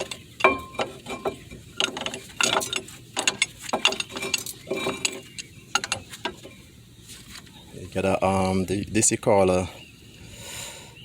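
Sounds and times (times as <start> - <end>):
hand tool clattering: 0.0 - 6.6.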